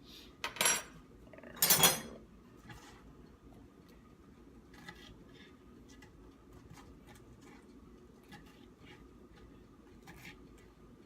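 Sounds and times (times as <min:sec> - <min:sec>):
kitchenware clattering: 0:00.4 - 0:01.0, 0:01.6 - 0:02.2.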